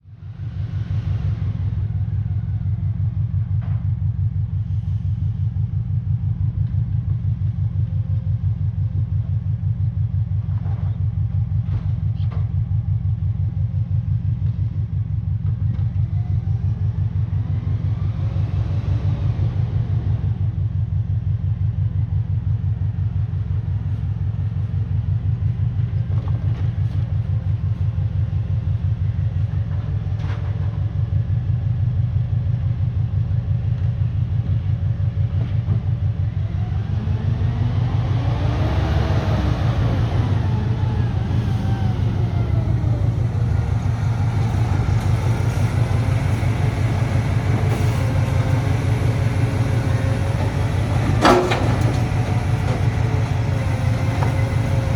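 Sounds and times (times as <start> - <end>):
diesel truck engine running: 0.2 - 54.9
whining tone: 36.5 - 54.9.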